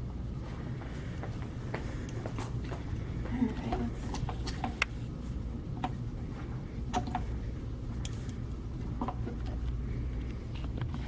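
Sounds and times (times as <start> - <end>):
room hum: 0.0 - 11.0.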